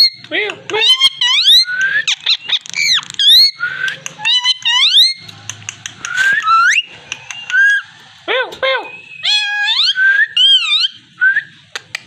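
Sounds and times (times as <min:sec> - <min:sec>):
parrot squeaky whistling calls: 0:00.8 - 0:05.3, 0:06.1 - 0:08.0, 0:08.6 - 0:11.6.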